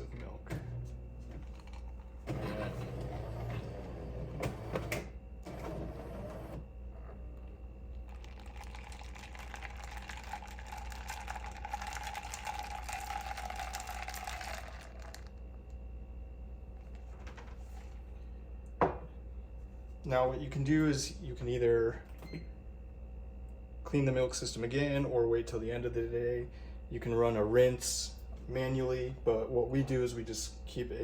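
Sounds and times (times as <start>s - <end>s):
coffee machine mechanical whir: 0.0s - 15.9s.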